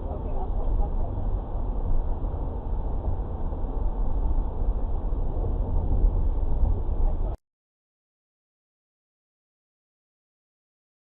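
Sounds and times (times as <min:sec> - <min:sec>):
car road and engine rumble: 0:00.0 - 0:07.4.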